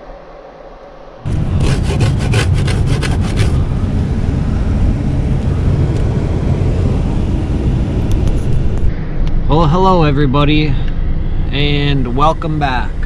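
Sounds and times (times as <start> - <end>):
loud low rumble: 1.0 - 13.0
rapid back-and-forth scraping: 1.3 - 3.6.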